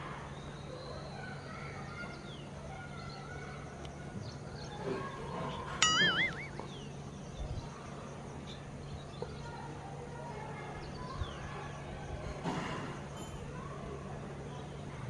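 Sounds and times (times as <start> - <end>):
faint bird chirps: 0.2 - 9.8
short wobbling tone: 5.8 - 6.6.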